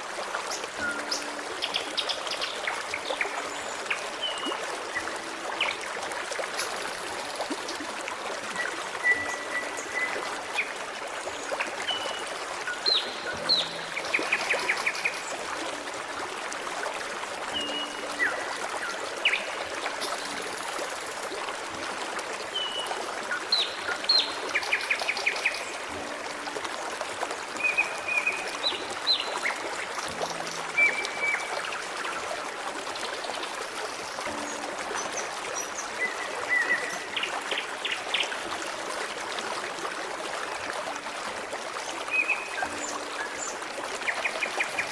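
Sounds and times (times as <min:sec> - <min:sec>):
forest stream running: 0:00.0 - 0:44.9
small birds singing: 0:08.6 - 0:15.8.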